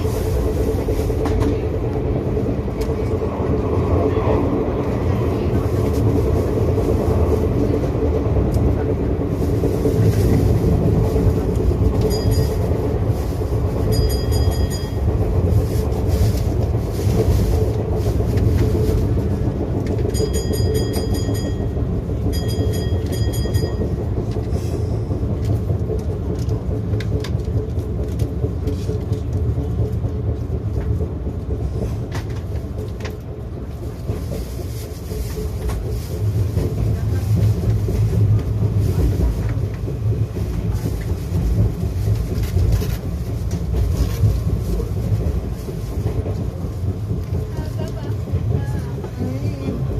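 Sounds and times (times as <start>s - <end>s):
rail joint clicks: 0.0s - 49.9s
train wheels rumbling on rail: 0.0s - 49.9s.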